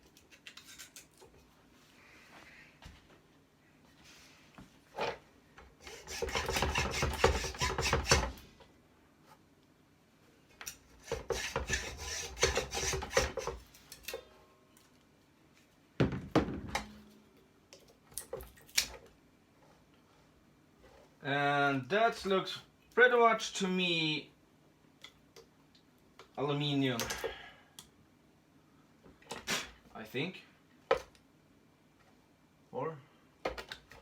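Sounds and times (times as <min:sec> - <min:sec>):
hand tool rasping on wire: 0:05.8 - 0:08.3, 0:11.0 - 0:13.6.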